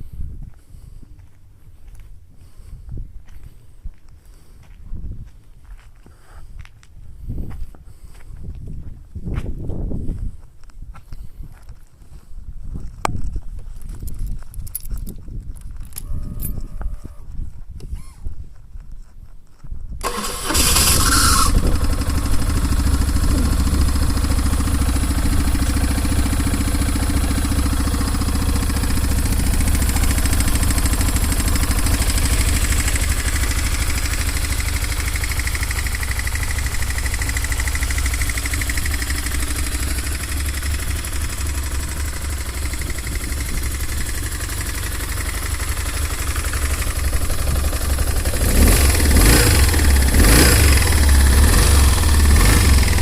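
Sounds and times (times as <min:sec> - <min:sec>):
motorcycle engine idling and revving: 0:20.0 - 0:53.0.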